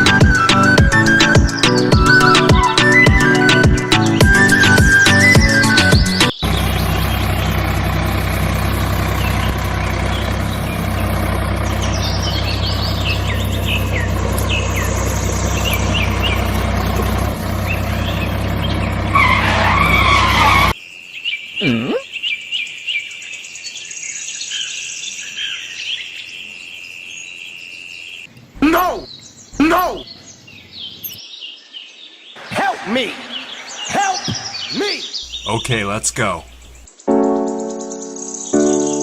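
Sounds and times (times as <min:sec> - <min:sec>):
birds chirping: 0:00.0 - 0:39.0
steady machine hum: 0:06.4 - 0:19.2.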